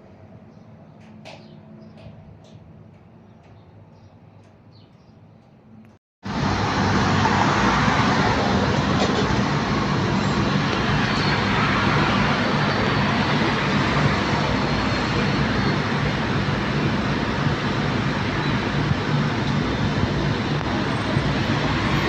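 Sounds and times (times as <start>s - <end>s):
jet engines roaring: 6.2s - 22.0s.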